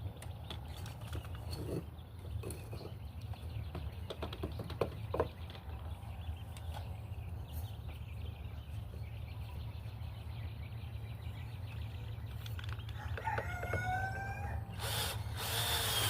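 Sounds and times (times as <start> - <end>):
rooster crowing: 13.0 - 14.8
cordless drill driving screw into wood: 14.8 - 16.0.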